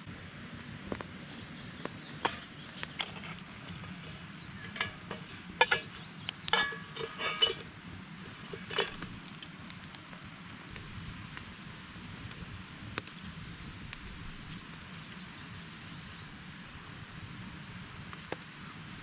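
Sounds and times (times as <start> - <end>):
metal cookware clinking: 2.2 - 9.4.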